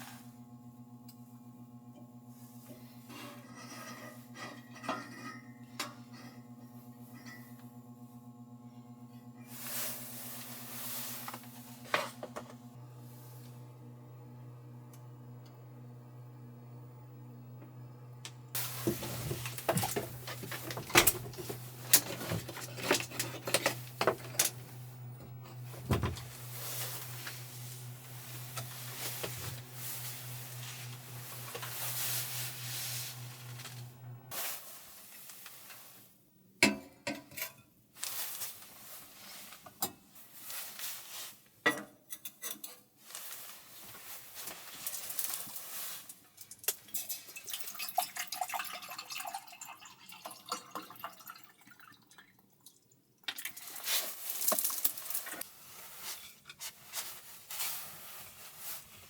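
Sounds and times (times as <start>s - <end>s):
steady low hum: 0.0s - 35.4s.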